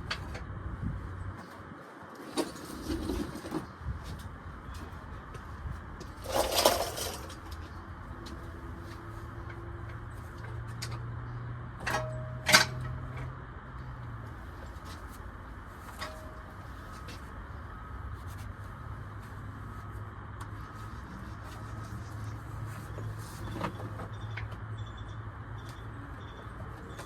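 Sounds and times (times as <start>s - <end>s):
metal tools clinking: 6.2s - 7.6s.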